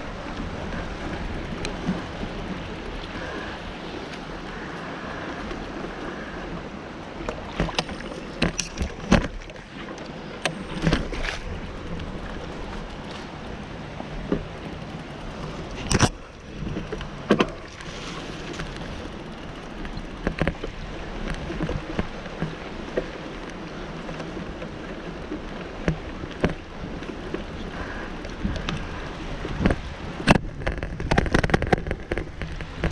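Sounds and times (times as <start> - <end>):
bicycle rolling over rough trail: 0.0 - 6.4, 7.3 - 32.9
bike knocking and rattling: 0.6 - 3.5, 10.4 - 22.7, 25.8 - 32.9
wind noise: 26.4 - 32.9.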